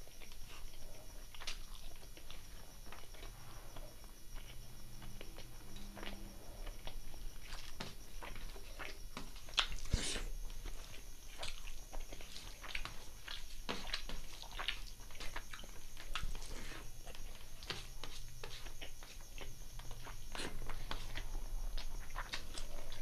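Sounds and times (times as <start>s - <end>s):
chewing and wet mouth smacks: 0.1s - 23.0s.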